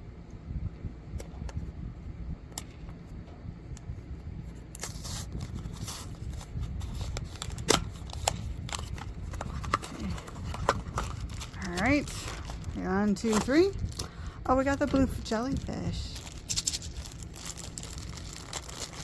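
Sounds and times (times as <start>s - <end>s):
low rumble: 0.0s - 19.0s
plastic wrapper crinkling: 4.8s - 19.0s.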